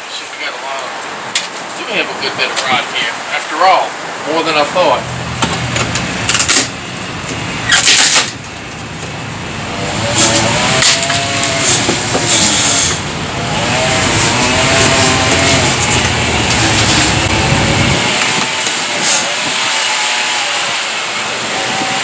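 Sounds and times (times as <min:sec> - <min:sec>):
reciprocating saw cutting: 0:01.8 - 0:22.0.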